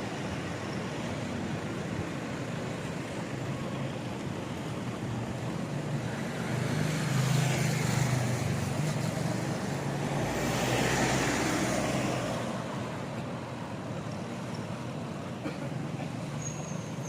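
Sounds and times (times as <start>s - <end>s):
road traffic noise: 0.0s - 17.0s
motor vehicle passing by: 6.2s - 12.6s.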